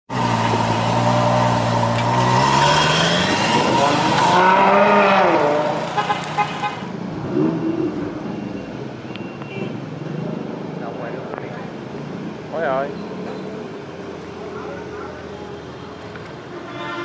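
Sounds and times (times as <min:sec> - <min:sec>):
sports car engine revving past: 0:00.1 - 0:08.1.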